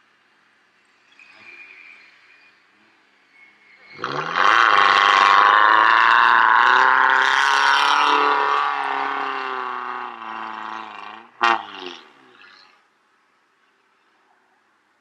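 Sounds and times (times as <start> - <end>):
off-road vehicle engine revving hard: 3.9 - 12.7.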